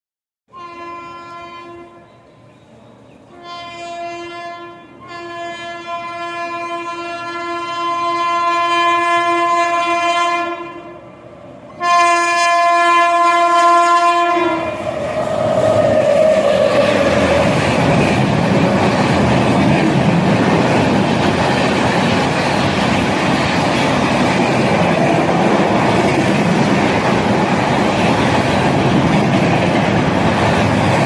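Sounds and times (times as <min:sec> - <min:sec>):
train horn blasts: 0:00.5 - 0:02.3, 0:03.3 - 0:11.1, 0:11.7 - 0:14.9
train wheels and carriages passing: 0:00.5 - 0:31.0.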